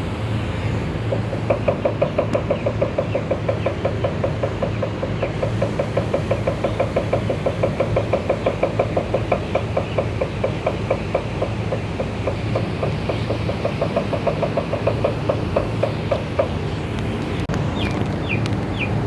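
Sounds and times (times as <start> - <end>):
machinery humming: 0.0 - 19.0
rapid even knocking: 1.1 - 18.8.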